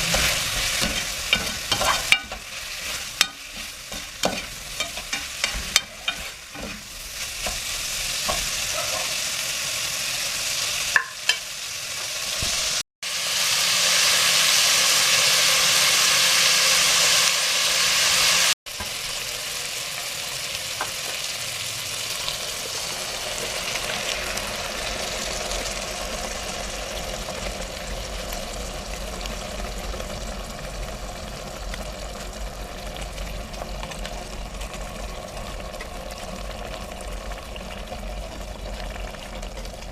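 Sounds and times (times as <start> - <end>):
utensil tapping pan: 0.0 - 2.4, 3.2 - 6.8
food sizzling in a frying pan: 0.0 - 39.9.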